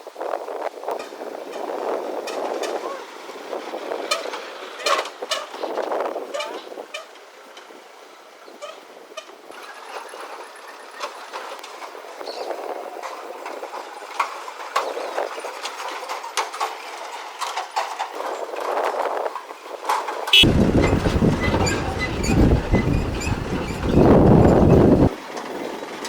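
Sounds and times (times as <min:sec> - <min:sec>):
small vehicles driving: 0:00.6 - 0:26.0
clattering knocks and rattles: 0:20.0 - 0:25.1.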